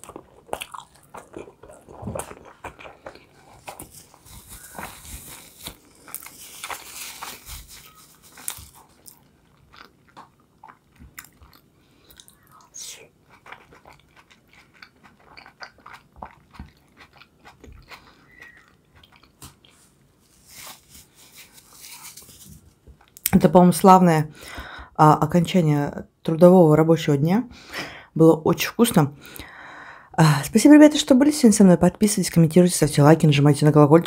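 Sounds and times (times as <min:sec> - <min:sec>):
wet chewing clicks and smacks: 0:00.0 - 0:05.0, 0:08.4 - 0:19.9.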